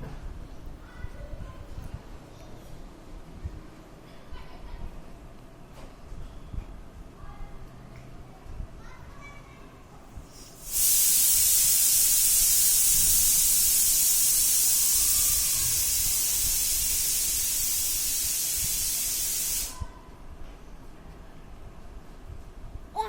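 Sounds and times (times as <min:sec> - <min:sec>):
loud steady hiss: 0:10.3 - 0:19.9.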